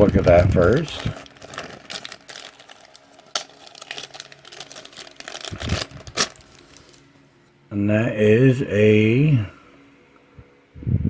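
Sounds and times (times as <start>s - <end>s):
packaging clicks and crinkles: 0.0s - 7.1s.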